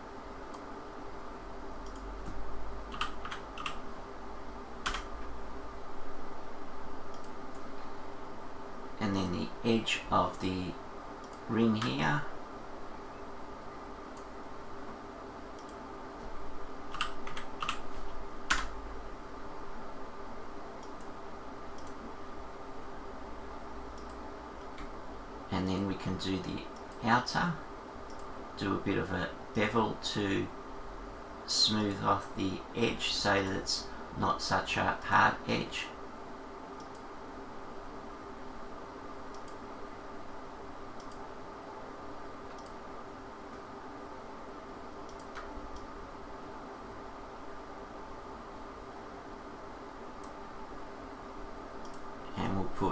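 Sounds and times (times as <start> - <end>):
faint steady hum: 0.0 - 52.9
faint computer mouse clicks: 1.8 - 2.4, 7.1 - 7.7, 15.6 - 15.8, 21.8 - 22.0, 24.0 - 24.2, 36.8 - 37.1, 39.3 - 39.6, 41.0 - 41.3, 42.5 - 42.8, 45.0 - 45.9, 51.8 - 52.1
keyboard and mouse clicks: 1.8 - 3.8, 4.8 - 5.3, 7.1 - 7.7, 11.2 - 12.0, 15.6 - 15.8, 16.9 - 17.9, 18.5 - 18.8, 21.8 - 22.1, 24.0 - 24.9, 28.1 - 28.3, 36.8 - 37.1, 39.3 - 39.6, 41.0 - 41.3, 42.5 - 42.8, 45.0 - 46.0, 51.8 - 52.1.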